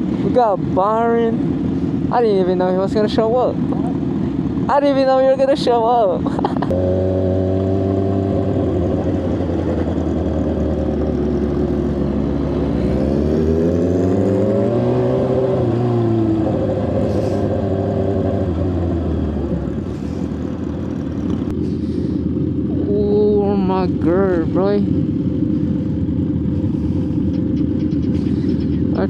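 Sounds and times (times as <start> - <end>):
motorcycle engine revving: 6.6 - 29.0.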